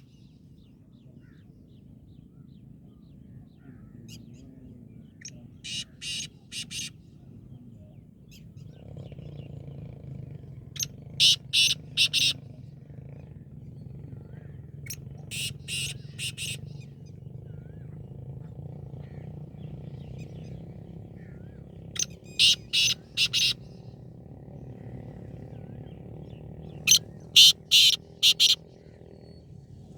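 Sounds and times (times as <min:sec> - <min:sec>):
steady low hum: 0:00.0 - 0:29.9
francolin calling: 0:10.8 - 0:12.4, 0:22.0 - 0:23.7, 0:26.8 - 0:28.6.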